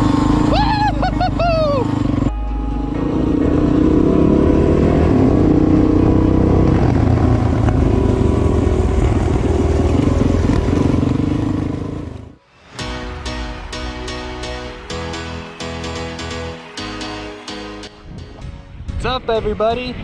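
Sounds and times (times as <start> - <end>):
dirt bike engine running: 3.0 - 12.3.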